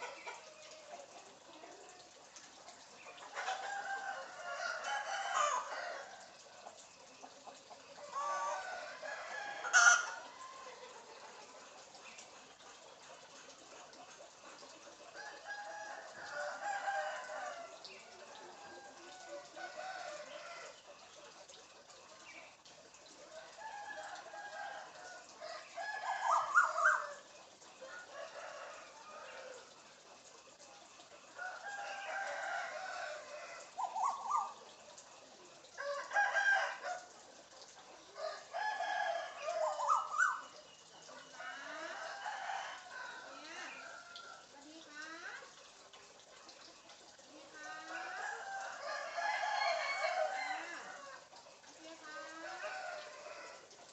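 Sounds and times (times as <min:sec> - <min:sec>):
chicken crowing and clucking: 0:03.2 - 0:06.4, 0:07.8 - 0:11.3, 0:15.0 - 0:20.8, 0:23.2 - 0:29.9, 0:31.3 - 0:34.4, 0:35.8 - 0:37.4, 0:38.0 - 0:40.5, 0:41.1 - 0:44.6, 0:47.5 - 0:51.4, 0:52.0 - 0:53.8.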